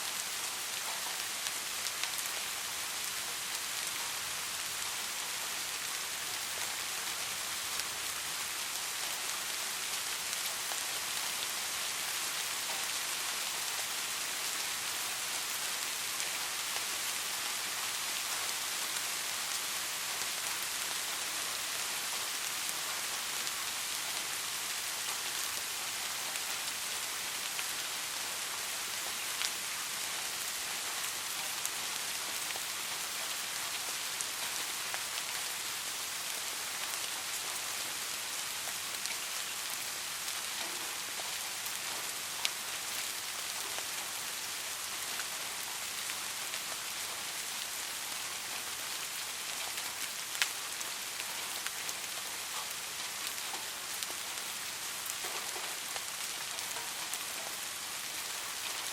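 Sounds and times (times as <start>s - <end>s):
soft rain hissing: 0.0s - 58.9s.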